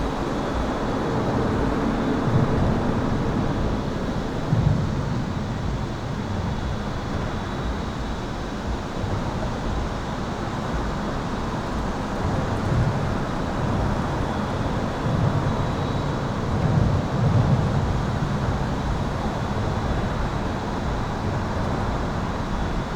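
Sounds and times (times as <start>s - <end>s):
highway traffic rumble: 0.0s - 22.9s.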